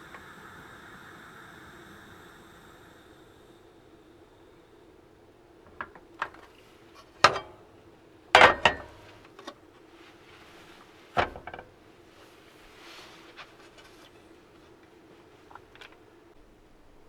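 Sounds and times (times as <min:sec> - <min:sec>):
faint steady hum: 0:00.0 - 0:17.0
objects knocking and clattering: 0:05.7 - 0:07.7, 0:08.4 - 0:09.6, 0:11.2 - 0:11.8.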